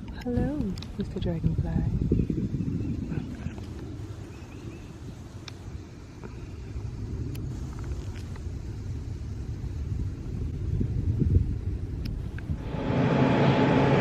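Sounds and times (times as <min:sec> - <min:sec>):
low unsteady rumble: 0:00.0 - 0:14.0
faint ticks: 0:05.3 - 0:09.0.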